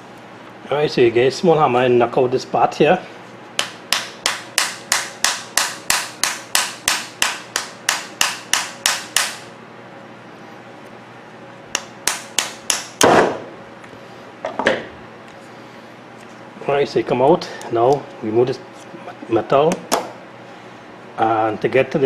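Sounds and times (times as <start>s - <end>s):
small hammer tapping metal: 3.6s - 9.5s, 11.8s - 13.1s.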